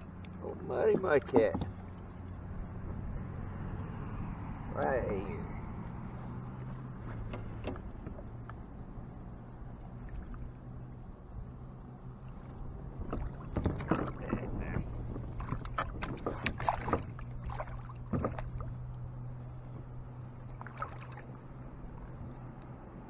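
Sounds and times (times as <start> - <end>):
knocks and scrapes in a kayak: 0.5 - 3.2, 4.3 - 8.6, 12.3 - 20.9.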